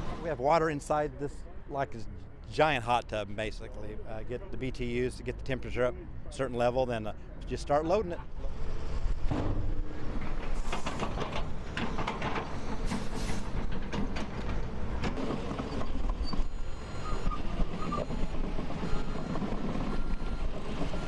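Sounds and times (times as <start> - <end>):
machinery engines rumbling: 0.0 - 21.0
metal clanks and knocks: 9.3 - 15.8
reversing alarm beeping: 15.6 - 21.0.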